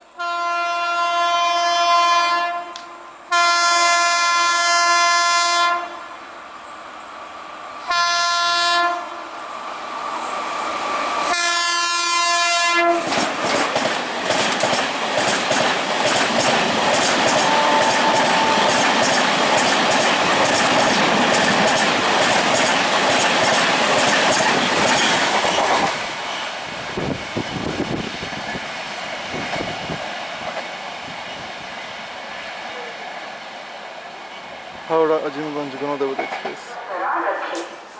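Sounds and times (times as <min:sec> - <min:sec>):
train passing at high speed: 0:00.0 - 0:37.9
train horn blasts: 0:00.1 - 0:06.1, 0:07.9 - 0:09.3, 0:11.3 - 0:13.1, 0:17.3 - 0:19.0.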